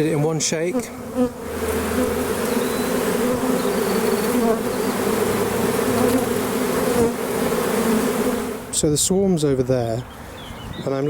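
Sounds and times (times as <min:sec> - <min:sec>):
bees buzzing: 0:00.0 - 0:08.9.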